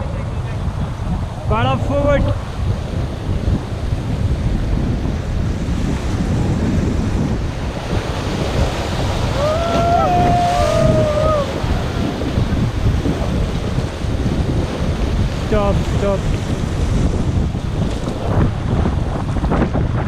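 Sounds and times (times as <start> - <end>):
rushing river water: 0.0 - 20.0
wind buffeting microphone: 0.0 - 20.0
person shouting: 9.4 - 12.2.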